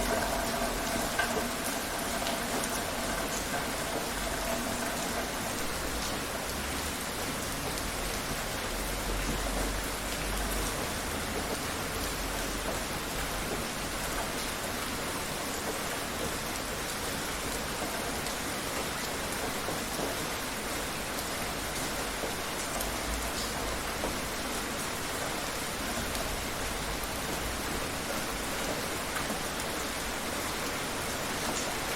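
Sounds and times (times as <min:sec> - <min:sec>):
heavy rain falling: 0:00.0 - 0:31.9.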